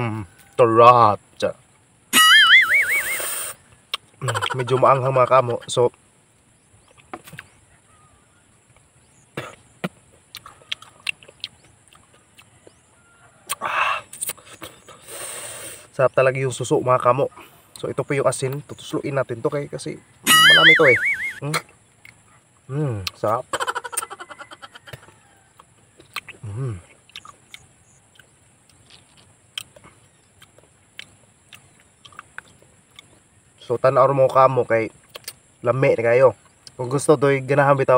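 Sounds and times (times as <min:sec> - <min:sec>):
lip smacks and chewing: 0:03.8 - 0:04.6, 0:09.5 - 0:12.8, 0:13.4 - 0:15.0, 0:24.8 - 0:33.3, 0:35.0 - 0:35.5
snail shells clicking and tapping: 0:30.4 - 0:33.2.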